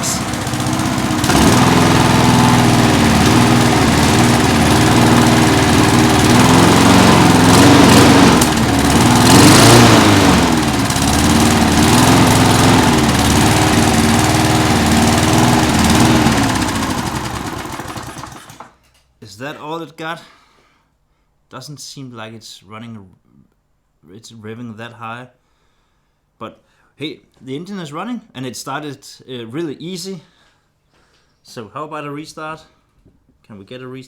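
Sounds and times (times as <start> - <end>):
lawn mower engine running: 0.0 - 18.8.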